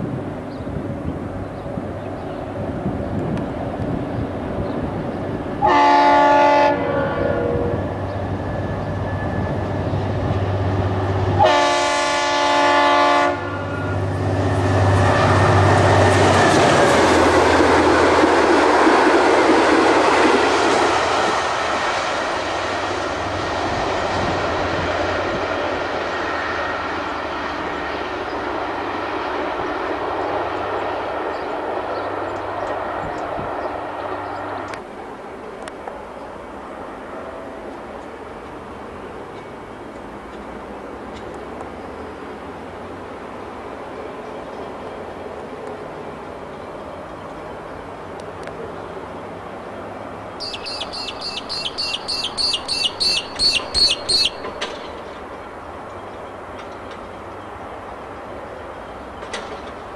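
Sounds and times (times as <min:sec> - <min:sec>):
diesel locomotive passing: 0:00.0 - 0:59.9
train horn blasts: 0:05.6 - 0:10.0, 0:11.1 - 0:16.0.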